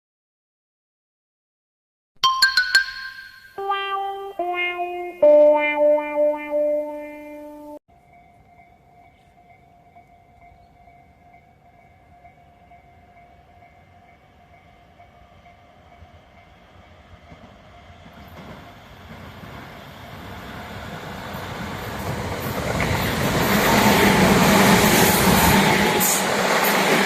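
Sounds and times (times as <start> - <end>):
electric train running noise: 13.6 - 27.0.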